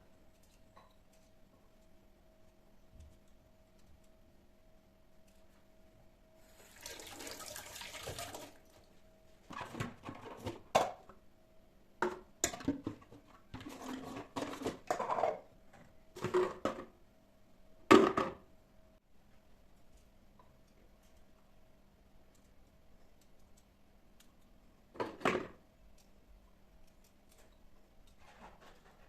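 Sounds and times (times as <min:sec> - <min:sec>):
tap water running: 0:06.5 - 0:08.7.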